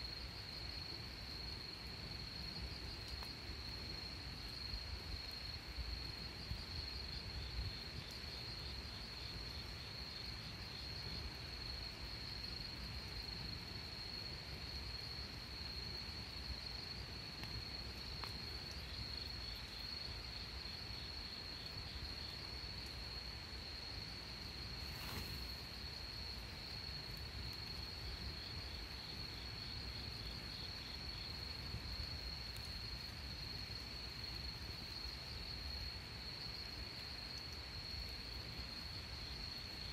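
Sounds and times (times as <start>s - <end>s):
faint pulsing insect chirp: 0.0s - 39.9s
short crackle: 24.8s - 25.7s.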